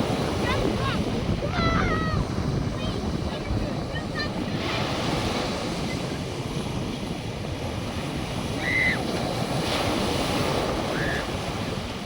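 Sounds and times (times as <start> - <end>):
surf washing onto beach: 0.0 - 12.0
wind buffeting microphone: 0.0 - 12.0.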